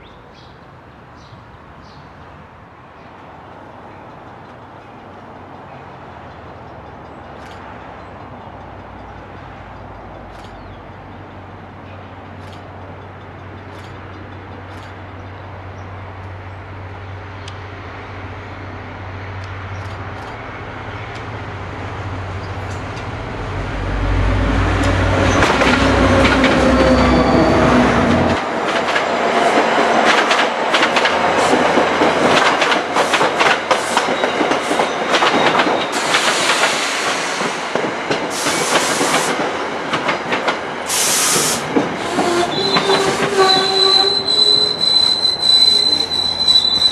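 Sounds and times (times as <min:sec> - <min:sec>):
locomotive engine hum: 0:03.6 - 0:33.0
train wheels clicking over joints: 0:06.5 - 0:16.4, 0:24.6 - 0:46.9
train wheels squealing: 0:26.3 - 0:28.3, 0:33.9 - 0:37.5, 0:41.0 - 0:46.9.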